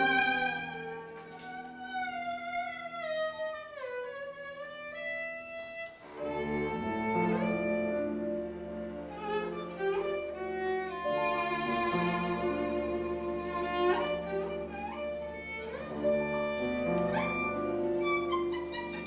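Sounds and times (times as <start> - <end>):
string ensemble low sustained notes: 0.0 - 2.0, 6.2 - 19.0
solo violin melody: 0.0 - 19.0.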